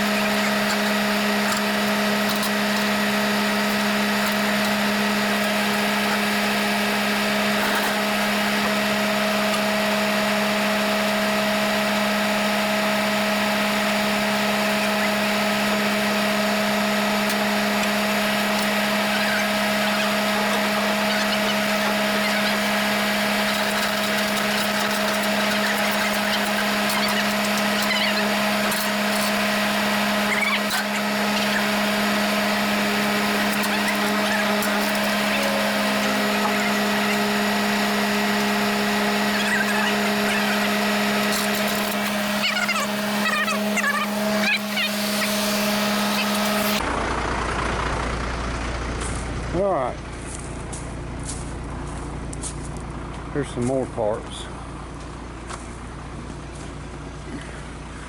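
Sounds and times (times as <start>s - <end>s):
motor humming with whine: 0.0s - 58.0s.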